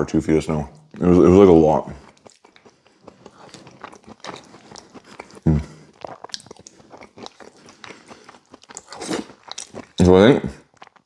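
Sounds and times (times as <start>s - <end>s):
man chewing with wet smacks: 0.7s - 11.0s.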